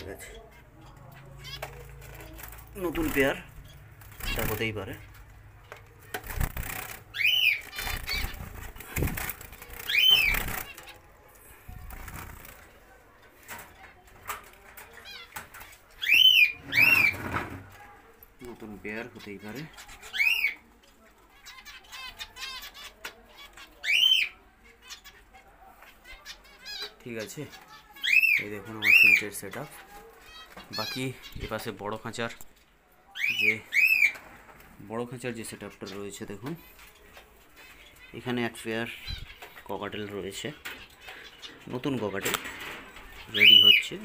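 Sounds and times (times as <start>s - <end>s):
birds chirping and chattering: 0.0s - 44.0s.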